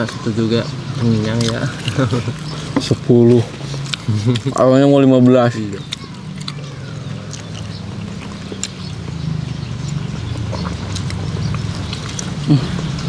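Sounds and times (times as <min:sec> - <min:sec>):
low engine-like rumble: 0:00.0 - 0:13.0
people chewing: 0:00.0 - 0:13.0
person humming: 0:12.5 - 0:12.8.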